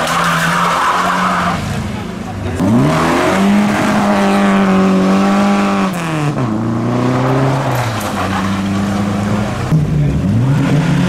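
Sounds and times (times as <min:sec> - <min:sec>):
car engine revving hard: 0:02.6 - 0:11.0.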